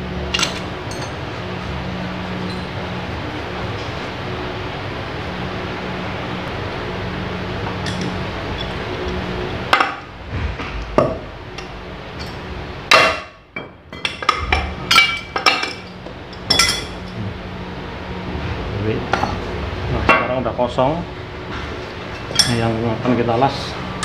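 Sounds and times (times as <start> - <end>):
background hum: 0.0 - 24.0
metallic clinks and knocks: 7.8 - 8.8, 12.2 - 17.2.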